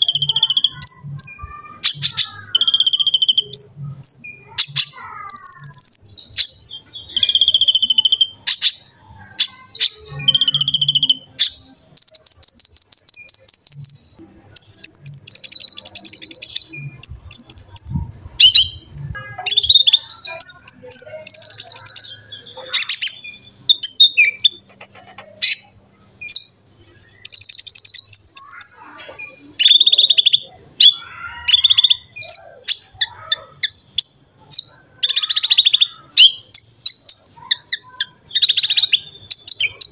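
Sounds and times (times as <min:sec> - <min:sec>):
bird singing high chirps and trills: 0:00.0 - 0:39.9.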